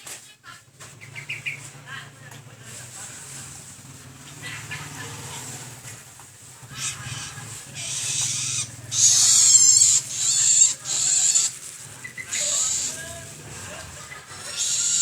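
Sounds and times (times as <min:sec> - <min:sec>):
shrike harsh rasping calls: 0:06.5 - 0:15.0.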